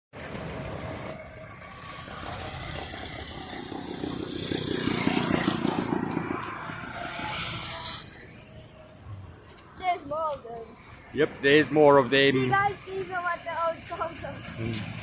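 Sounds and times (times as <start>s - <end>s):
vintage car engine driving past: 0.2s - 9.8s.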